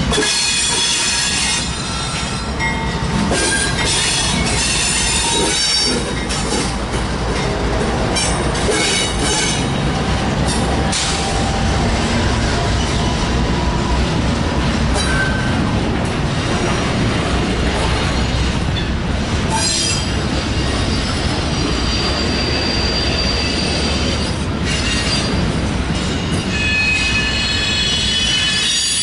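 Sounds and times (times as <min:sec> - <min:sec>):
freight train wheels rumbling: 0:00.0 - 0:29.0
wheel squeal: 0:19.5 - 0:25.4, 0:26.3 - 0:29.0.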